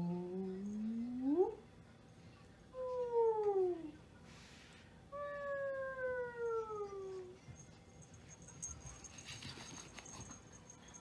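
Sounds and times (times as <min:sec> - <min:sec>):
wailing meow-like tone: 0:05.1 - 0:07.3.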